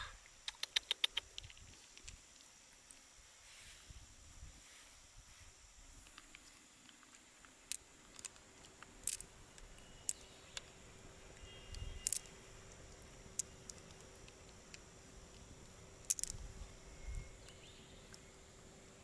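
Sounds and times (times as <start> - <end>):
faint steady hum: 0.0 - 19.0
sharp clicks of hard objects: 7.4 - 10.7, 11.7 - 16.5.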